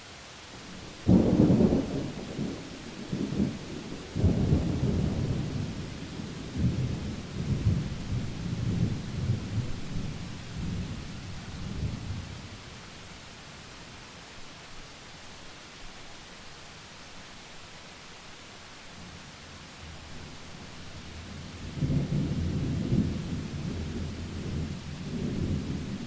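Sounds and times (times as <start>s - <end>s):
steady rain: 0.0s - 26.0s
thunder clap and rumble: 21.8s - 26.0s.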